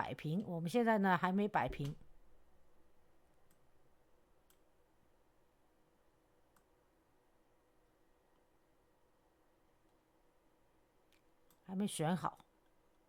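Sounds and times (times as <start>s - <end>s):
faint computer mouse clicks: 6.5s - 6.7s.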